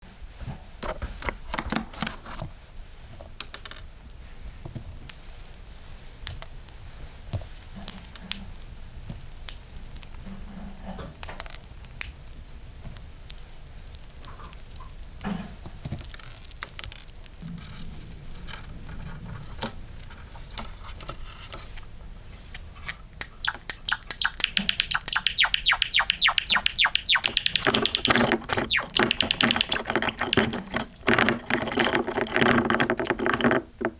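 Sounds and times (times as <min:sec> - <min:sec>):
sparrow singing: 0:23.4 - 0:31.4.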